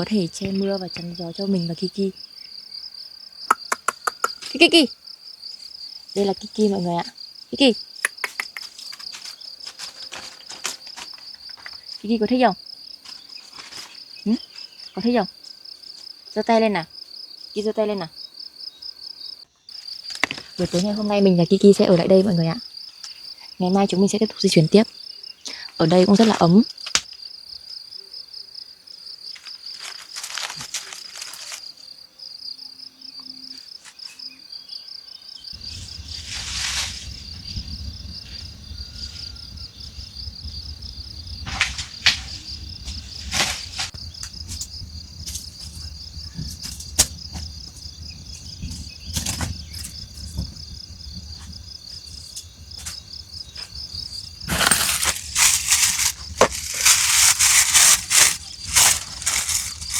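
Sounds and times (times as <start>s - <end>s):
insects trilling: 0.0s - 59.9s
rustling: 8.6s - 12.0s, 13.0s - 15.0s, 29.4s - 31.7s, 35.6s - 37.5s, 41.5s - 50.6s, 51.2s - 59.9s.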